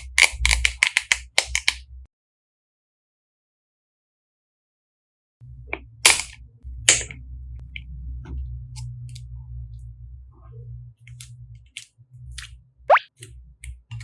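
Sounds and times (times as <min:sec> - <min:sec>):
low steady hum: 0:05.4 - 0:14.0.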